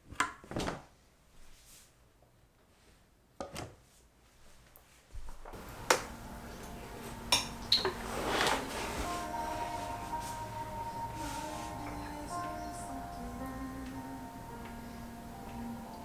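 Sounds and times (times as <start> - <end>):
steady low hum: 5.6 - 16.0.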